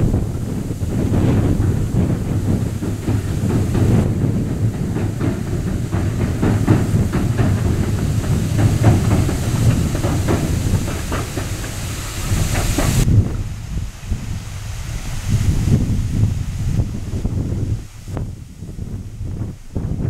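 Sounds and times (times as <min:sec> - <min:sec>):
wheels clicking over rail joints: 0:00.0 - 0:13.1
train rumbling on bridge: 0:00.0 - 0:20.0.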